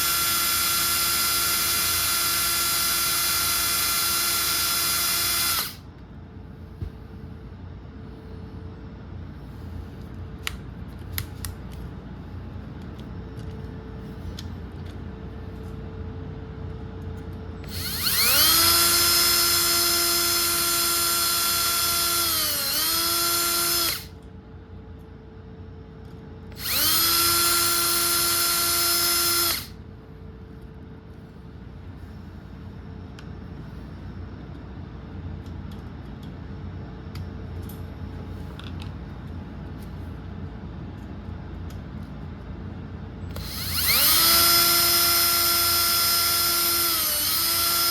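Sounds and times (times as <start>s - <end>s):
electric drill drilling: 0.0s - 5.8s, 17.6s - 24.1s, 26.6s - 29.8s, 43.3s - 47.9s
low steady hum: 0.0s - 47.9s.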